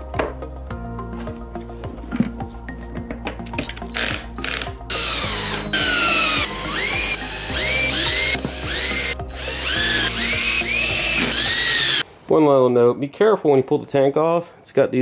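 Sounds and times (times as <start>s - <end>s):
electric screwdriver whirring: 3.6s - 12.0s.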